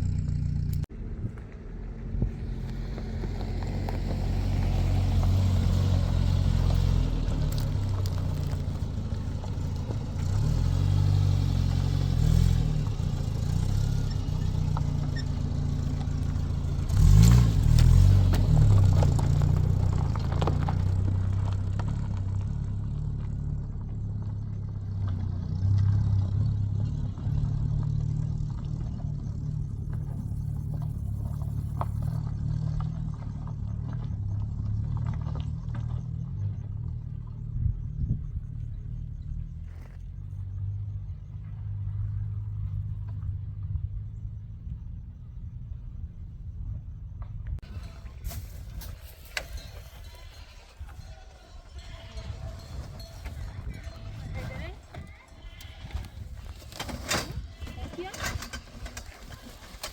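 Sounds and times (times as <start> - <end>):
vehicle engine driving: 0.0 - 59.9
rattling and scraping: 2.3 - 22.3, 47.6 - 59.9.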